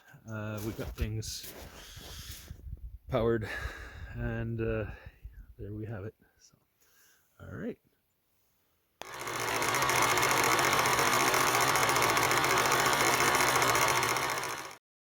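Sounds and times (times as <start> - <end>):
generator running: 9.0 - 14.8.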